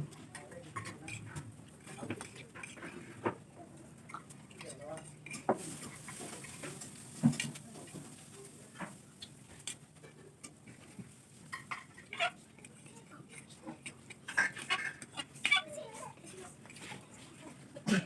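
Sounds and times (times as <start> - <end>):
plates and cutlery clinking: 4.0 - 9.0, 9.6 - 15.5.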